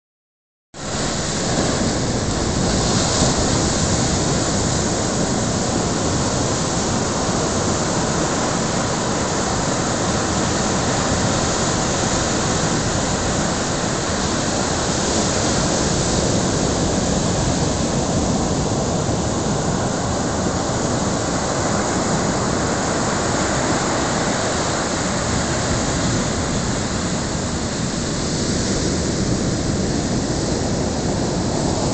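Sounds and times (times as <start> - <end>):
storm surf breaking on beach: 0.8 - 31.9
strong wind: 0.8 - 31.9.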